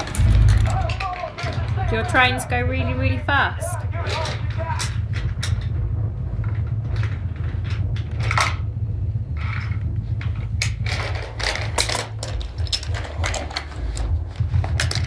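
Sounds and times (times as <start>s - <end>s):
steady low hum: 0.0s - 15.0s
toy trains rattling on wooden track: 10.6s - 14.1s.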